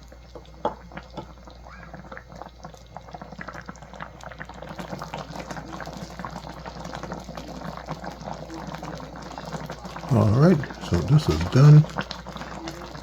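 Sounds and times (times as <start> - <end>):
thick gravy bubbling: 0.0 - 13.0.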